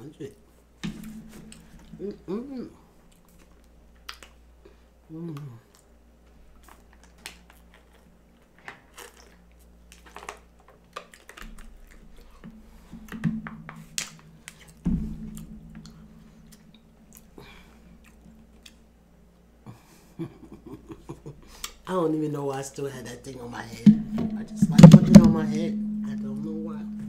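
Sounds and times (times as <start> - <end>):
person chewing: 3.0 - 4.4, 6.6 - 12.5, 15.8 - 18.9
wet mouth clicks and smacks: 3.1 - 4.4, 8.9 - 12.5, 13.9 - 14.8, 18.0 - 18.9, 21.6 - 21.8
loud knocks: 23.9 - 27.0.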